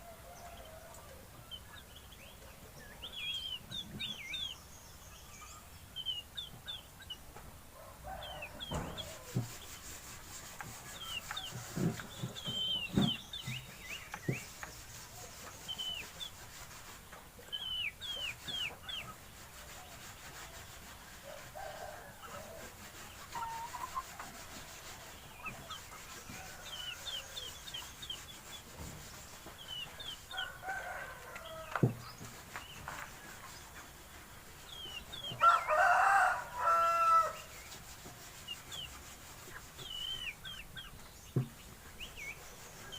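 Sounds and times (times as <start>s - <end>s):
chickens clucking: 0.0s - 4.6s, 5.5s - 42.9s
rooster crowing: 35.4s - 37.4s.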